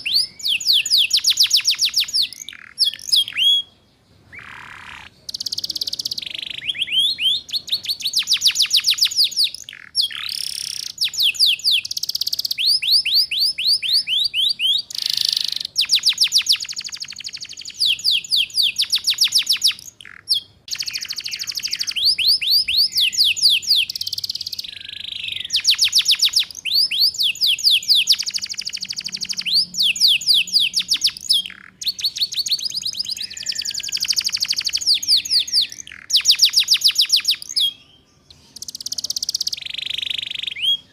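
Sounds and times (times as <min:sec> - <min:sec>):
canary singing trill: 0:00.0 - 0:40.9.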